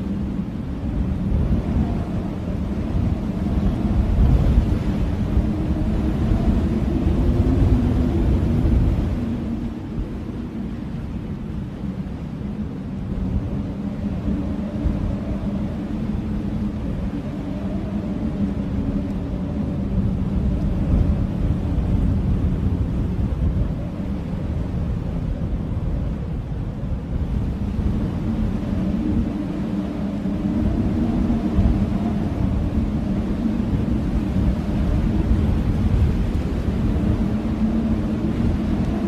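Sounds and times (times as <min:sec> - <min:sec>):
blizzard wind howling: 0:00.0 - 0:39.0.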